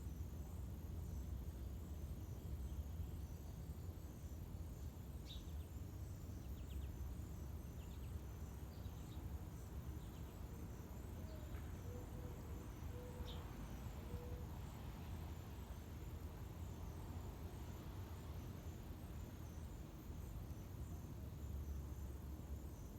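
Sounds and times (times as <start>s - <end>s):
faint bird chirps: 11.0s - 14.9s.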